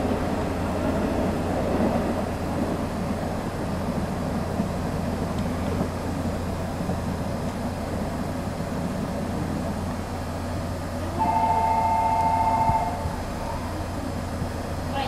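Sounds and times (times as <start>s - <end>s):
train rumbling: 0.0s - 15.0s
two-note train horn: 11.2s - 13.6s.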